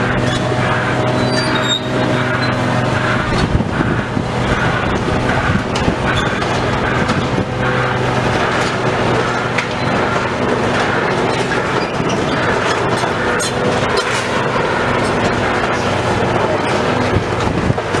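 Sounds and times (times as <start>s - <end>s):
heavy machine engine running: 0.0s - 18.0s.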